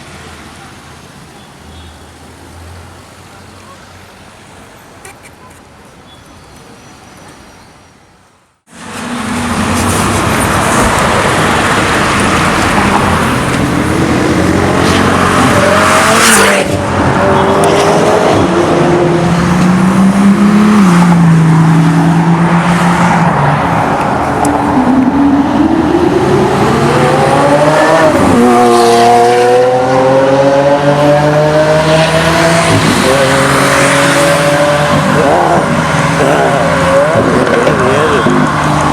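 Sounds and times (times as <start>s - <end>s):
car engine revving: 9.1s - 38.9s.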